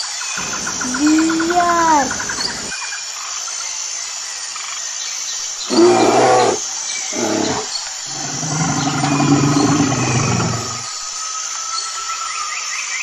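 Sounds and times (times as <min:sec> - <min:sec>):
steady outdoor hiss: 0:00.0 - 0:12.2
bear growling: 0:00.4 - 0:02.7, 0:05.7 - 0:10.9.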